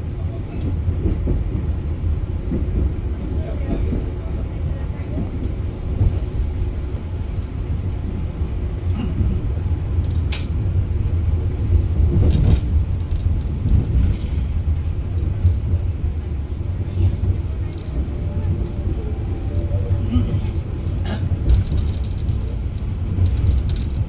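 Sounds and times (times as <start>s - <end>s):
train rumbling on track: 0.0s - 24.0s
sharp high click: 10.3s - 10.6s.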